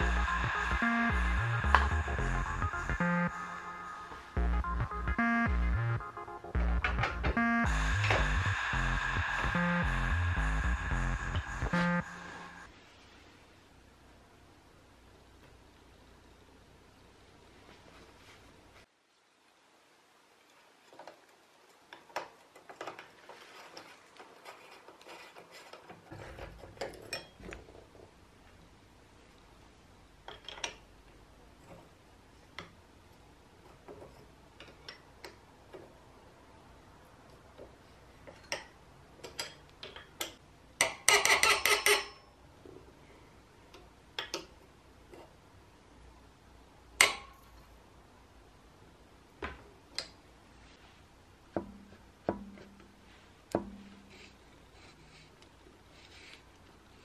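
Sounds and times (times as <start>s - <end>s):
low rumble: 0.0s - 5.8s, 7.7s - 12.7s
metal tools clicking and tapping: 25.6s - 27.7s, 30.2s - 30.8s, 38.2s - 42.3s.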